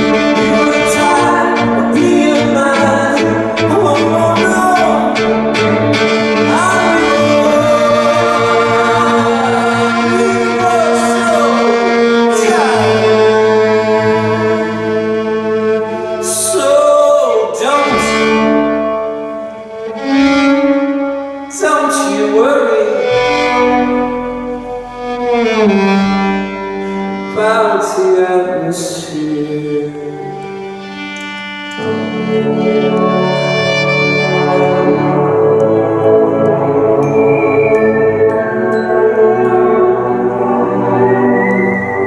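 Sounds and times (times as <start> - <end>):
live band playing: 0.0 - 28.7
bowed violin sliding phrases: 0.0 - 42.0.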